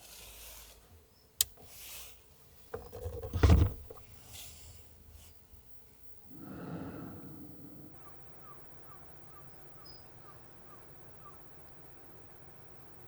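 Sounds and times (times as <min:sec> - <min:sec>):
rustling: 0:00.0 - 0:05.8.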